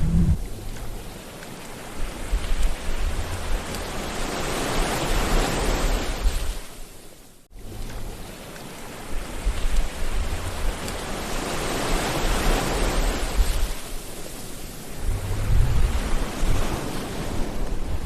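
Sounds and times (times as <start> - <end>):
low wave rumbles: 0.0 - 1.0, 14.8 - 16.8
surf washing on shore: 0.0 - 18.0.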